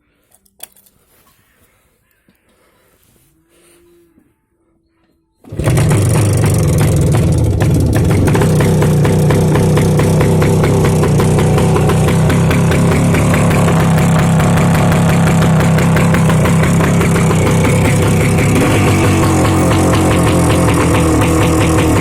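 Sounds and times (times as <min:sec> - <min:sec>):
motorcycle engine running: 0:05.5 - 0:22.0.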